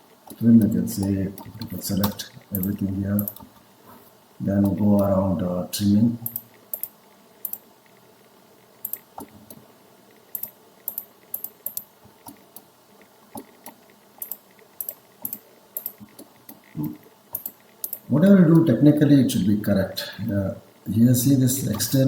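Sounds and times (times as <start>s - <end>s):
mouse and keyboard clicks: 1.4s - 3.5s, 10.4s - 12.7s, 13.3s - 18.1s.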